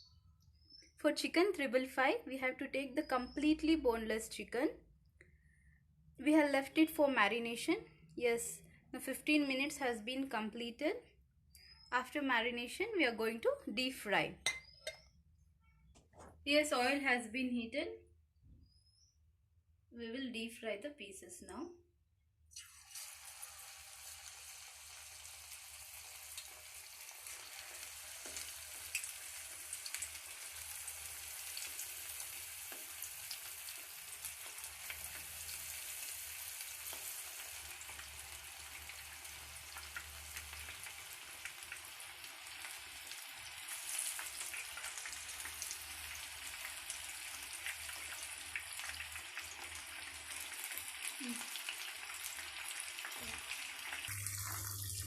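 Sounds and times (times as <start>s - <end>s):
chicken deep frying in oil: 22.5s - 55.0s.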